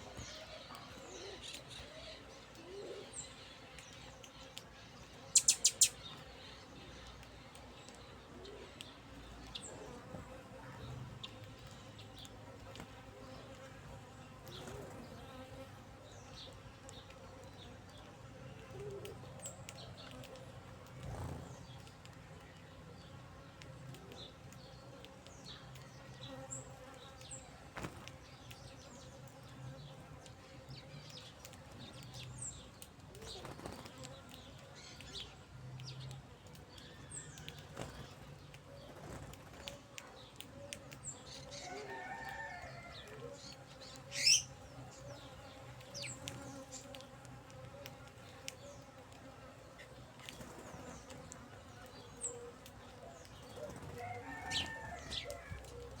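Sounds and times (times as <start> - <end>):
insects buzzing: 5.2 - 6.0
faint high-pitched bird chirps: 5.3 - 6.3, 44.1 - 44.6
sharp clicks: 5.4 - 6.1.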